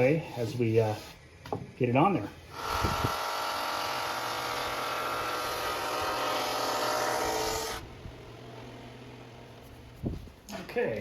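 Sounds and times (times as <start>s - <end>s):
electric sander running: 2.5s - 9.7s.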